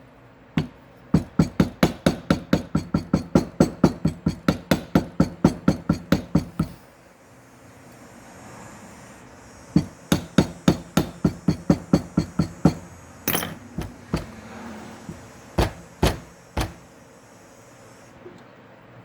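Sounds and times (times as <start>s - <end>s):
hammer strikes: 0.6s - 6.8s, 9.8s - 16.9s.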